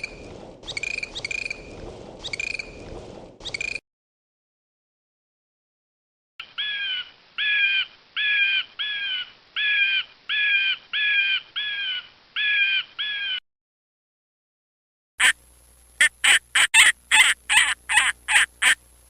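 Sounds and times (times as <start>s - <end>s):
animal calling: 16.0s - 18.8s.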